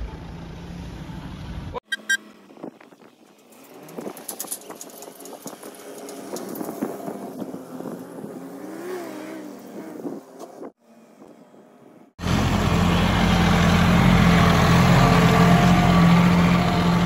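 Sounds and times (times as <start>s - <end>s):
vehicle engine running: 12.2s - 17.0s.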